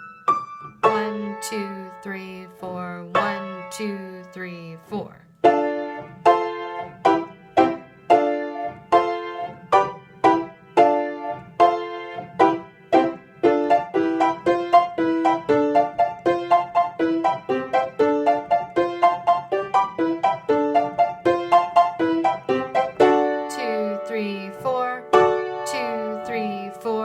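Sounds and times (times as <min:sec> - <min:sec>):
piano chords and runs: 0:05.4 - 0:27.0.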